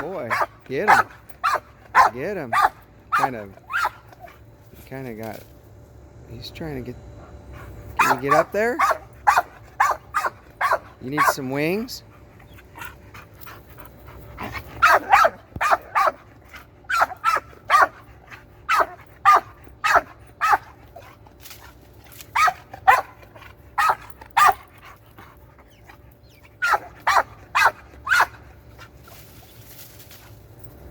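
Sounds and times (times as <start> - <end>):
dog barking: 0.2 - 4.1, 8.0 - 11.5, 14.8 - 16.3, 16.9 - 18.0, 18.7 - 20.8, 22.3 - 23.2, 23.8 - 24.7, 26.6 - 28.4.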